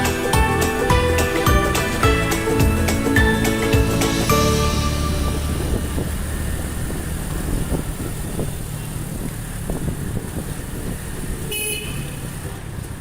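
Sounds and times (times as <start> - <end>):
short high-pitched sound: 0.0 - 6.6
low engine rumble: 0.0 - 11.5
road noise: 0.0 - 13.0.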